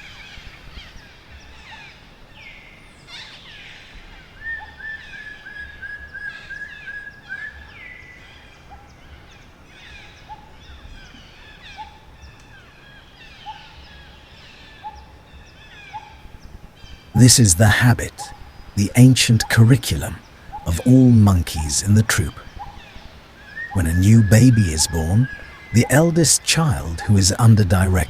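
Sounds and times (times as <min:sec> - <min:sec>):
birds chirping and calling: 0:00.0 - 0:28.0
rapid repeated bird notes: 0:13.2 - 0:28.0.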